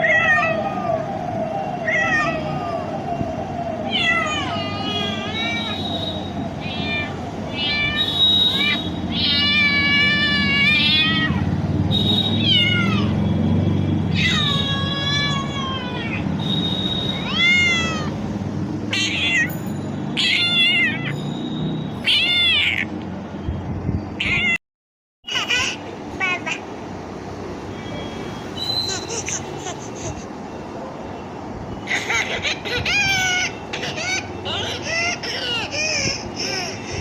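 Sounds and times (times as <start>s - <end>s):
cat meowing: 0.0s - 0.9s, 1.9s - 2.4s, 3.9s - 5.8s, 6.6s - 8.0s, 8.6s - 11.5s, 12.4s - 13.2s, 14.1s - 16.3s, 17.2s - 18.2s, 18.9s - 19.5s, 20.2s - 21.1s, 22.0s - 22.9s, 24.2s - 24.6s.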